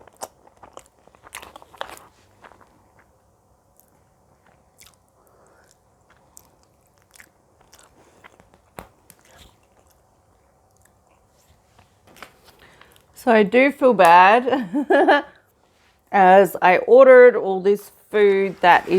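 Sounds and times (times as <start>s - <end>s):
chewing and biting food: 0.0s - 11.6s.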